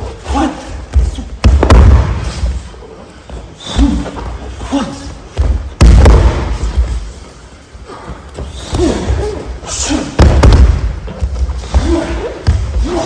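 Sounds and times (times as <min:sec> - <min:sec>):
body thudding on mats: 0:10.2 - 0:13.0.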